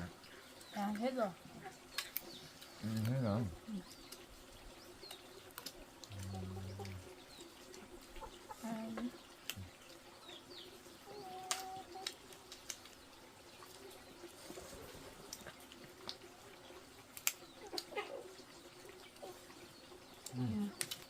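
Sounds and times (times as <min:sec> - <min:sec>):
chickens clucking: 0:05.2 - 0:12.9, 0:13.5 - 0:20.8.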